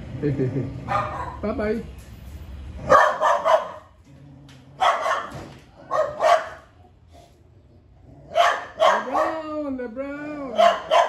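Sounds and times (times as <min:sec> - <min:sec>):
dog barking: 0:00.9 - 0:01.4, 0:02.8 - 0:03.9, 0:04.8 - 0:06.7, 0:08.3 - 0:09.5, 0:10.5 - 0:11.0.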